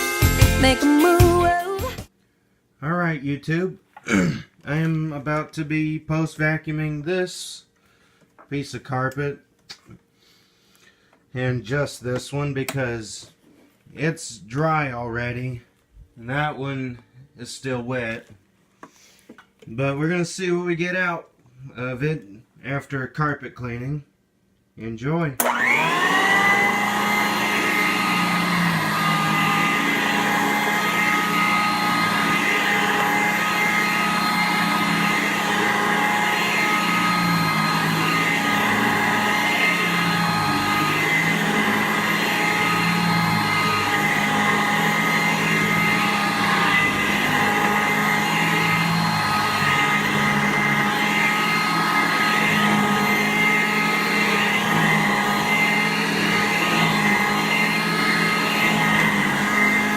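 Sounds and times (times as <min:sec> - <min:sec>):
vacuum cleaner running: 0:25.4 - 0:59.9.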